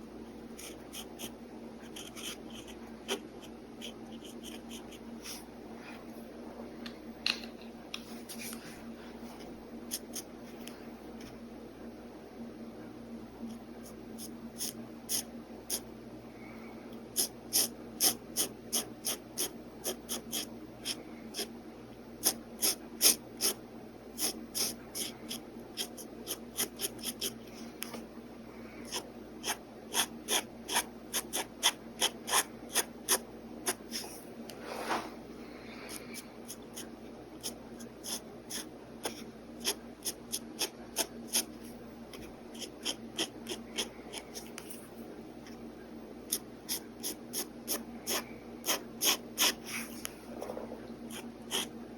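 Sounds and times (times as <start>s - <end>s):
pen scratching on paper: 0.6s - 5.4s, 9.9s - 10.3s, 13.8s - 15.8s, 17.2s - 21.5s, 22.2s - 23.6s, 24.2s - 27.4s, 28.8s - 34.2s, 35.9s - 41.5s, 42.2s - 44.8s, 46.3s - 50.0s, 51.1s - 51.7s.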